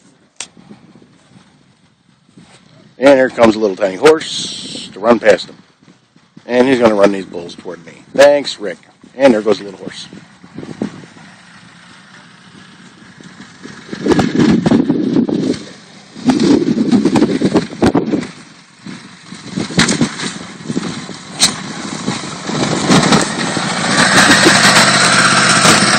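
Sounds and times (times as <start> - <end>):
motorcycle engine revving: 8.1 - 25.9.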